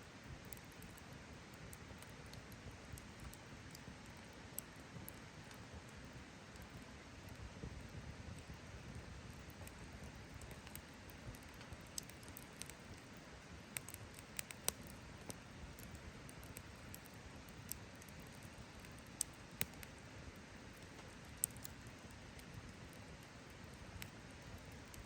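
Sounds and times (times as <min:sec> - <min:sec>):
campfire crackling and popping: 0:00.4 - 0:25.0.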